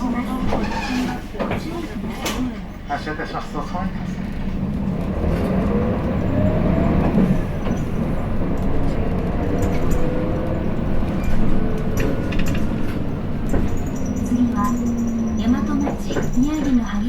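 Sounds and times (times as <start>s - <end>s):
bus diesel engine and road noise: 0.0s - 17.0s
rising engine whine: 4.2s - 16.2s.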